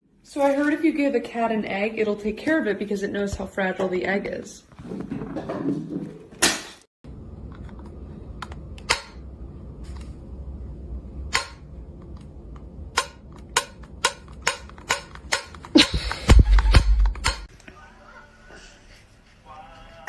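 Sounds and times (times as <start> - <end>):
low steady hum: 7.0 - 20.0.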